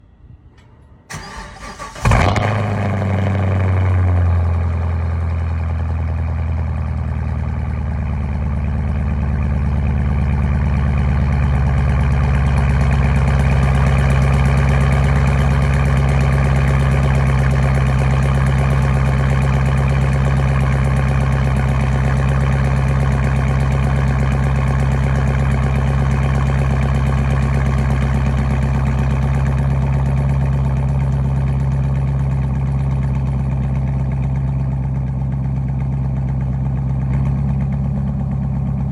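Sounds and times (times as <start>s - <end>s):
car engine starting and idling: 0.2s - 38.9s
engine starter cranking: 0.6s - 2.9s.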